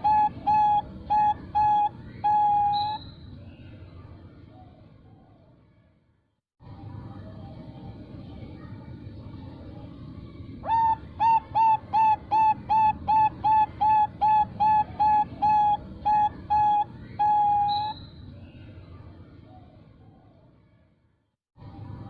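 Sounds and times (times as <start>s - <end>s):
dove cooing: 0.0s - 3.0s, 10.6s - 17.9s.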